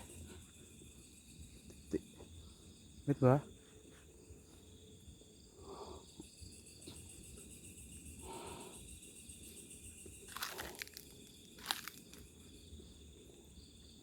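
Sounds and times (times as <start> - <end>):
crickets chirring: 0.0 - 14.0
breathing close to microphone: 8.2 - 9.0
rustling or steps crackling: 10.3 - 12.3.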